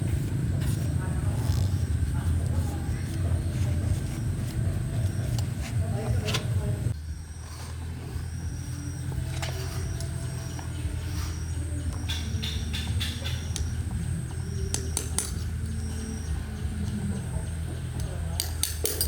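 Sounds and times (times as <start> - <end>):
steady low hum: 0.0 - 19.0
metal tools clinking and knocking: 18.4 - 19.0.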